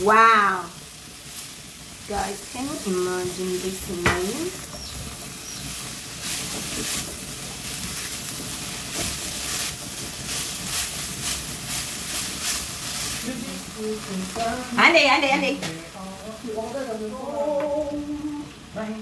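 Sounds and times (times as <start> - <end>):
stir fry sizzling in pot: 0.0 - 19.0
spatula scraping: 5.8 - 13.4.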